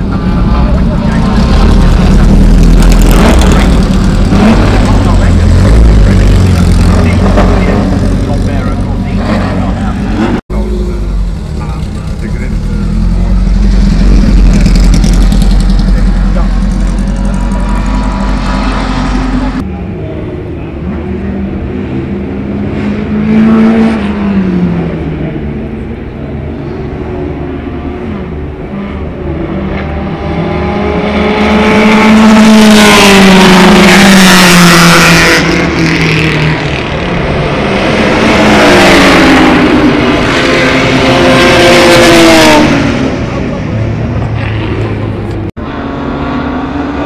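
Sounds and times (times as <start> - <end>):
racing car engines passing: 0.0 - 47.0.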